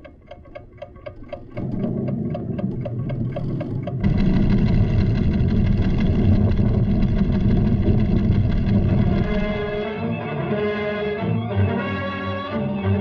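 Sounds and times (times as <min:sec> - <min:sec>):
rapid even ticking: 0:00.0 - 0:10.0
low rumble: 0:01.6 - 0:10.0
sustained orchestral music: 0:09.2 - 0:13.0.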